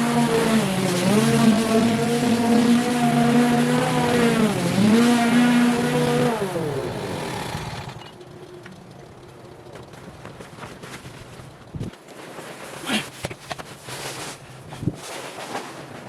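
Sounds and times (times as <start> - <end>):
small petrol engine running: 0.0 - 11.8.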